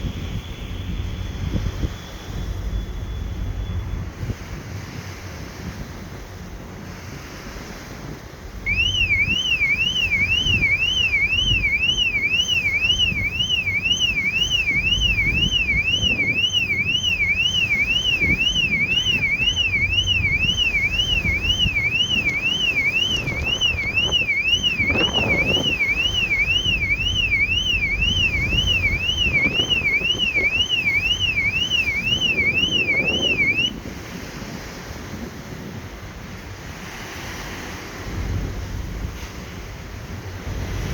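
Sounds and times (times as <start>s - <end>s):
wind noise on microphone: 0.0s - 40.9s
electronic alarm wailing: 8.7s - 33.8s.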